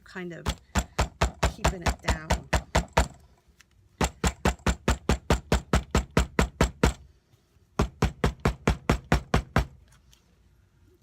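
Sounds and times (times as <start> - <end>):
hammer pounding leaf: 0.4 - 3.2, 4.0 - 7.1, 7.7 - 9.8.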